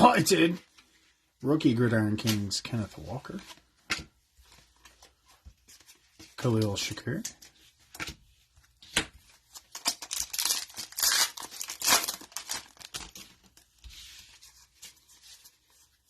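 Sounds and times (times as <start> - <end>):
card pack wrapper tearing: 9.6 - 13.6.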